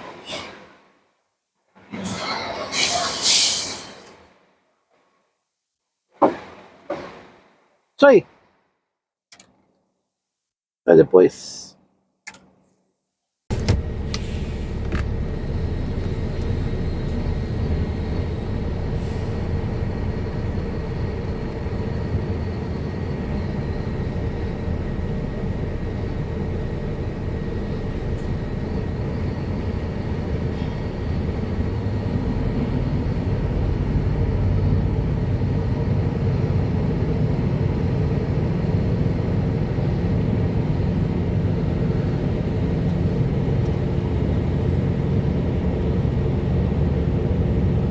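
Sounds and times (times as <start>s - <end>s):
heavy truck engine rumble: 13.5s - 47.9s.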